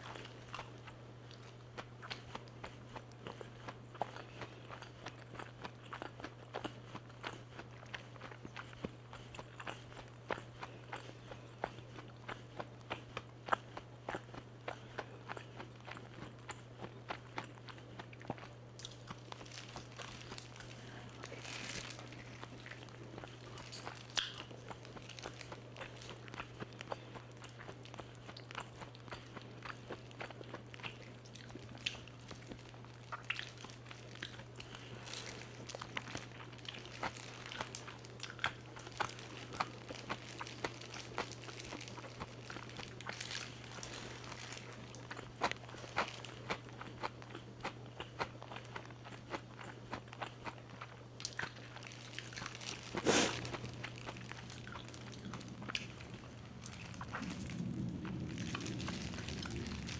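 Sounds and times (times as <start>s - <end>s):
crunching fried chicken: 0.0s - 59.9s
low hum: 52.8s - 59.9s.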